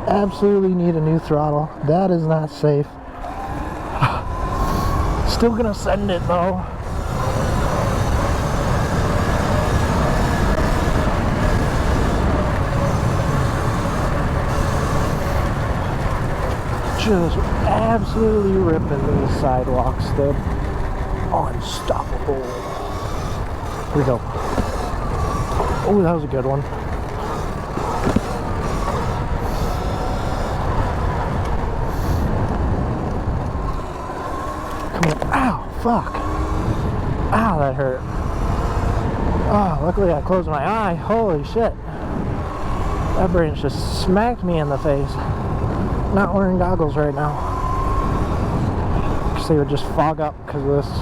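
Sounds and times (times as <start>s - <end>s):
electric motor whine: 0.0s - 50.6s
tyre and chain rumble: 3.2s - 41.4s
wind buffeting on microphone: 3.2s - 51.0s.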